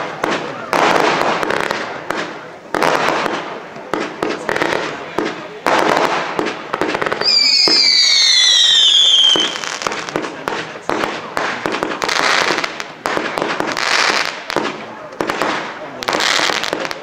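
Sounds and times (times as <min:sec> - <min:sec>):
firework bangs and crackling: 0:00.0 - 0:17.0
falling firework whistle: 0:07.2 - 0:09.8.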